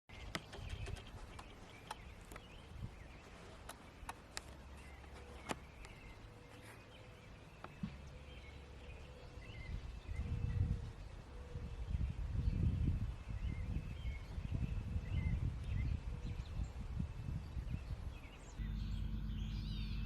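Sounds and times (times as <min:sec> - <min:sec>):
small birds chirping: 0:00.1 - 0:20.0
faint steady hum: 0:18.6 - 0:20.0
low rumble: 0:18.6 - 0:20.0.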